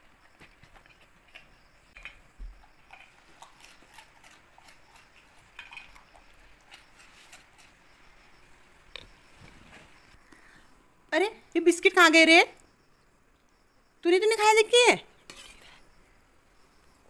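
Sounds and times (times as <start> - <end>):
dogs crunching biscuits: 0.0 - 7.9.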